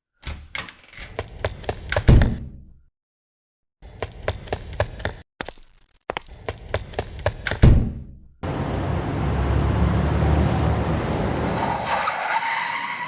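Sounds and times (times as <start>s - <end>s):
vehicle driving rumble: 8.4s - 12.2s
high squeal: 11.4s - 13.0s.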